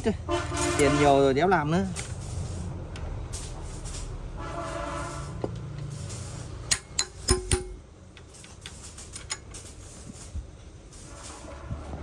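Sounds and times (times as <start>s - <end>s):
sharp metallic clinks: 6.7s - 7.9s.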